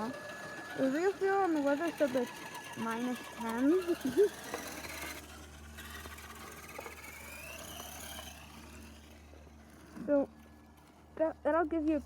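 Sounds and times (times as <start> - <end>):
electric motor whining: 0.0 - 11.8.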